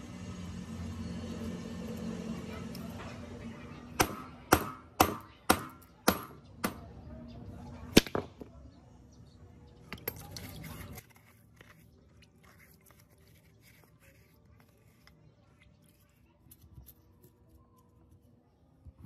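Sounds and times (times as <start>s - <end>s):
hammer striking wooden block: 4.0s - 6.9s.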